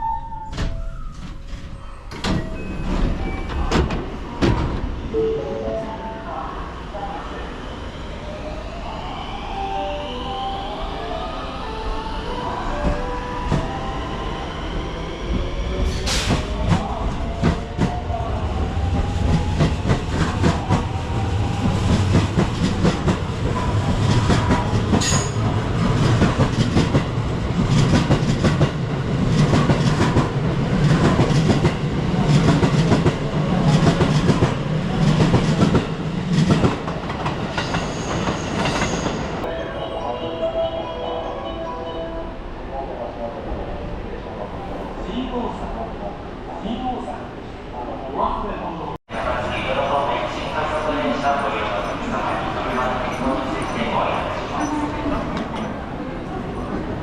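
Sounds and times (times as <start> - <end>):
train rumble: 12.7 - 39.6, 42.4 - 57.0.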